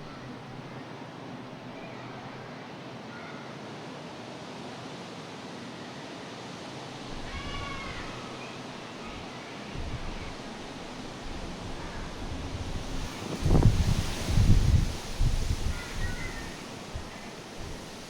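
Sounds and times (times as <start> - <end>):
strong wind blowing: 7.1 - 18.0
wind buffeting microphone: 9.0 - 18.0.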